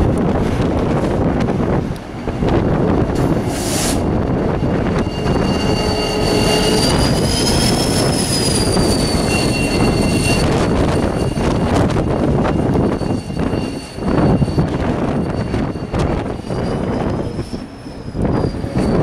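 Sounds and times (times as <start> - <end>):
freight train rumbling on rails: 0.0 - 19.0
brief hiss: 3.5 - 4.0
high wheel squeal: 3.5 - 19.0.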